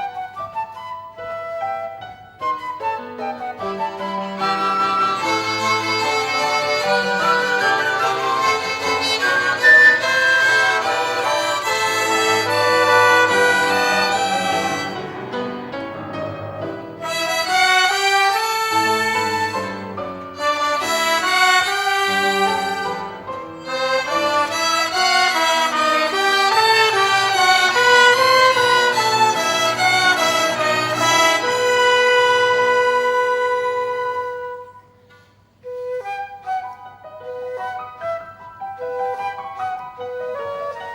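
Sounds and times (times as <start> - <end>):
violin ensemble playing hymn: 3.3 - 34.6.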